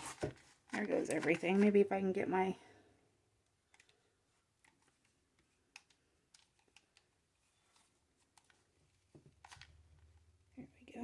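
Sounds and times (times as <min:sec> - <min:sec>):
faint clicks and taps: 0:03.6 - 0:10.2.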